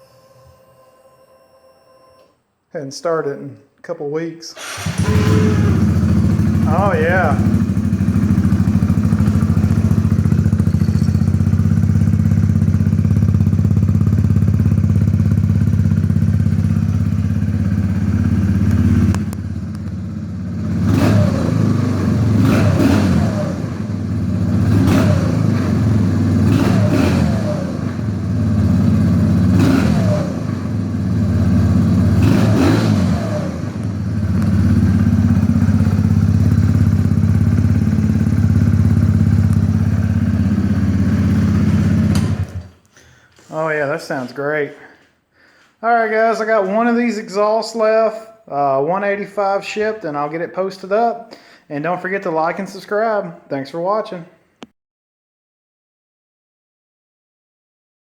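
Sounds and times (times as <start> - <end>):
engine throttle blips: 4.6 - 42.8
motorcycle engine idling: 4.7 - 42.7.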